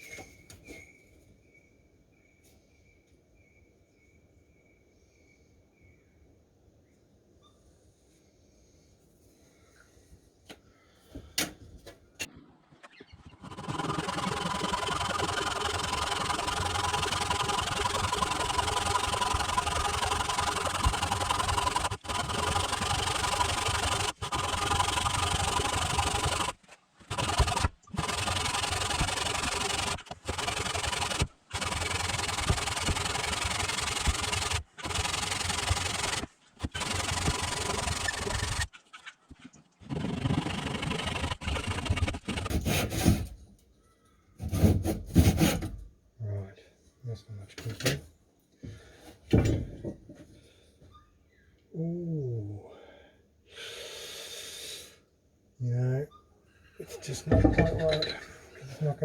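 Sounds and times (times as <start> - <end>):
power tool cutting wood: 13.2 - 38.7, 39.8 - 43.4.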